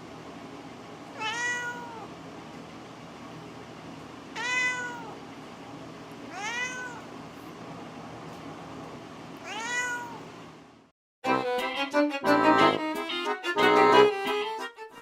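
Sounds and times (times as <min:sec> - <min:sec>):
cat meowing: 0:01.1 - 0:02.1, 0:04.4 - 0:05.2, 0:06.3 - 0:07.1, 0:09.4 - 0:10.3.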